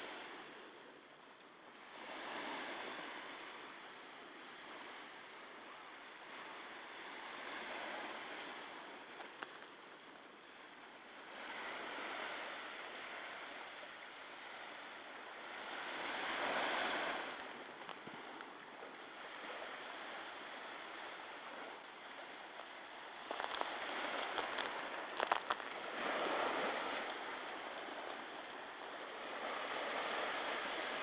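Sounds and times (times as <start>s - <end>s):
sea waves breaking: 0.0s - 31.0s
crackles: 6.4s - 13.1s, 15.6s - 29.6s.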